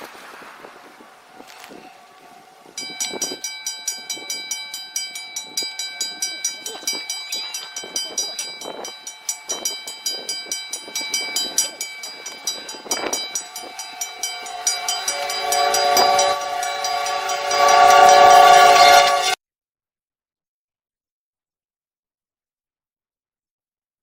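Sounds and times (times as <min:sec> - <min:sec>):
train horn chord: 0:00.7 - 0:04.5, 0:10.8 - 0:19.4.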